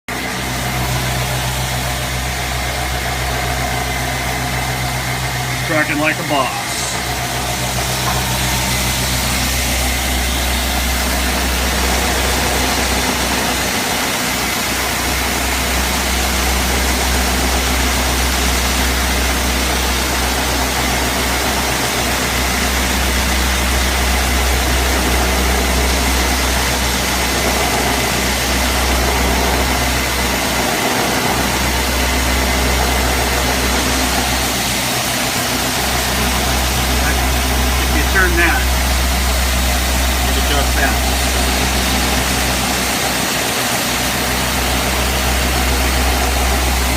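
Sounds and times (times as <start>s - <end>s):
belt grinder running: 0.2s - 46.9s.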